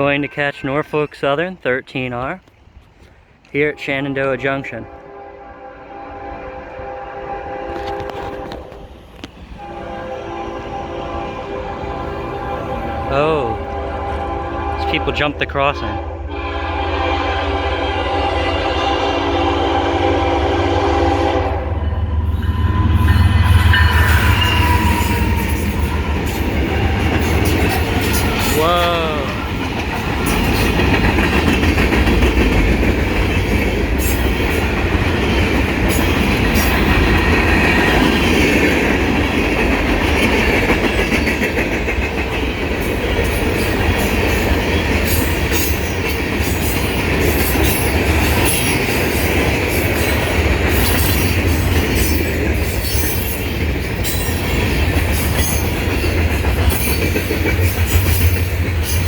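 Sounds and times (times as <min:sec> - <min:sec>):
freight train rumbling past: 0:00.0 - 0:59.0
train wheels clacking on rail joints: 0:22.9 - 0:59.0.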